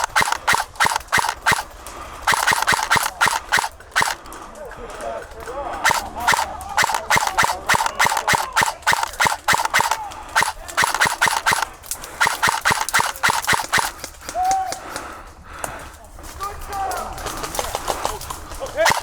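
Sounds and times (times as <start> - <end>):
airsoft guns firing: 0.0 - 5.0, 5.8 - 14.5, 18.8 - 19.0.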